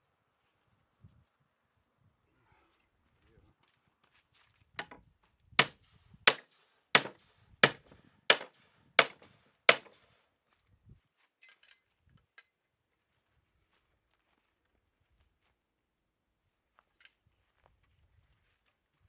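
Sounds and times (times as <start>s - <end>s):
hammer strikes: 5.6s - 10.0s.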